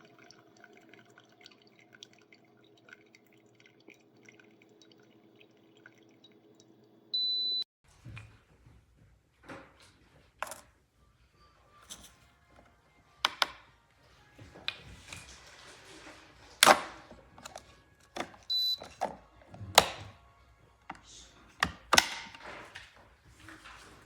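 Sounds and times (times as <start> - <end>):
coffee maker clicks and knocks: 13.2 - 13.6, 16.6 - 17.6, 18.2 - 20.2, 21.6 - 22.4.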